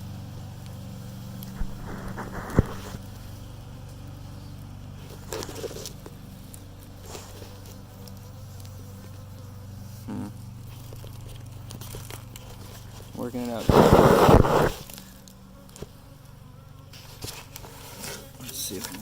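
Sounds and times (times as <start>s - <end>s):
honeybees buzzing: 0.0s - 19.0s
handling rustles: 5.0s - 9.1s.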